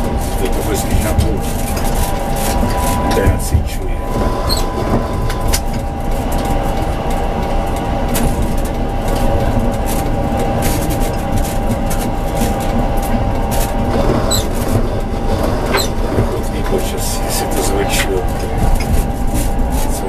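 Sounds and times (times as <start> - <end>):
tram rumbling on track: 0.0 - 20.0
steady high tone: 0.1 - 9.4.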